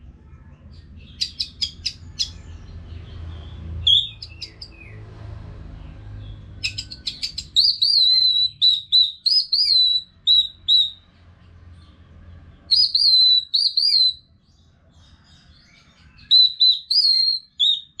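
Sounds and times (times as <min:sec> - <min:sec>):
thrush singing whistled notes: 0:03.8 - 0:05.0, 0:06.6 - 0:11.1, 0:12.7 - 0:14.3, 0:16.2 - 0:18.0.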